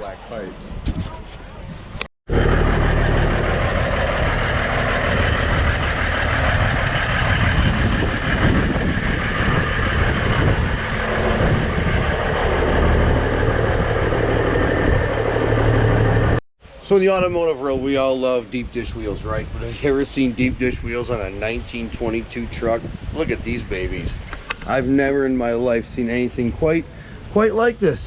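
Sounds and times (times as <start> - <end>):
truck engine idling: 2.3 - 16.4.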